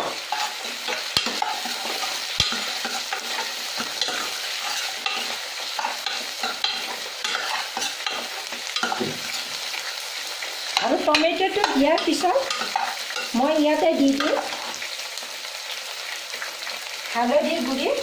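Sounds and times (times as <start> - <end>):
utensil scraping a pan: 0.0 - 9.6
vegetables sizzling in hot oil: 0.0 - 18.0.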